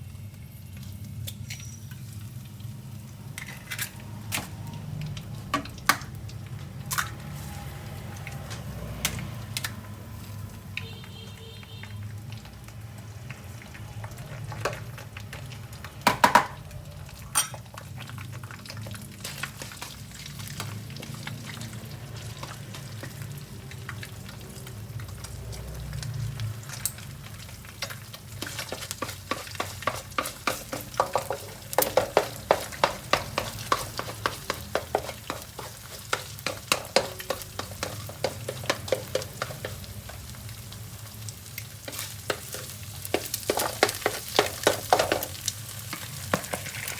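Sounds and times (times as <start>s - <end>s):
fried rice sizzling in a pan: 0.0s - 46.9s
spatula scraping and clacking on pan: 3.3s - 4.6s, 13.2s - 16.6s, 17.2s - 40.8s, 41.5s - 46.9s.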